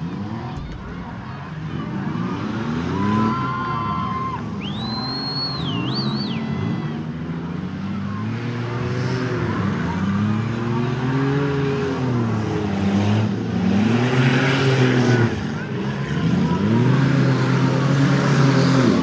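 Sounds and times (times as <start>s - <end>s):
car engines revving: 0.0s - 19.0s.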